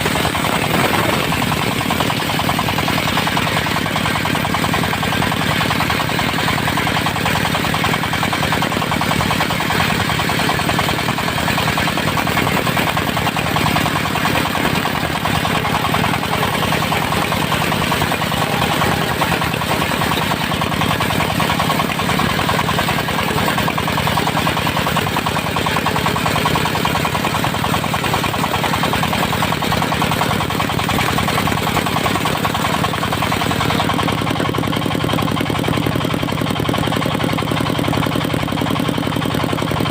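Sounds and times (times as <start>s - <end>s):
spinning saw blade rushing: 0.0s - 31.9s
diesel engine pulsing drone: 0.0s - 39.9s.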